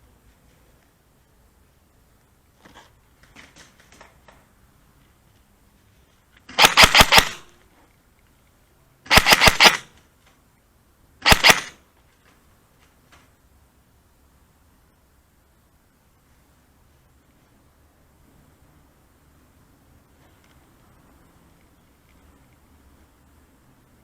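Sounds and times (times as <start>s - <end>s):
airsoft gun rapid shots: 6.5s - 7.5s, 9.1s - 10.0s, 11.2s - 11.8s.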